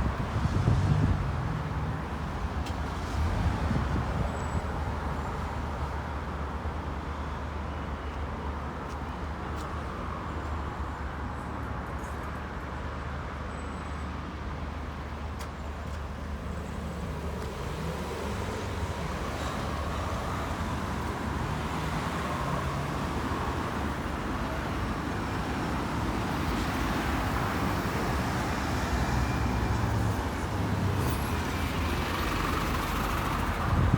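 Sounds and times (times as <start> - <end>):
tyre and road noise: 0.0 - 7.1, 14.4 - 33.9
vehicle engines rumbling: 0.0 - 7.2, 14.6 - 33.9.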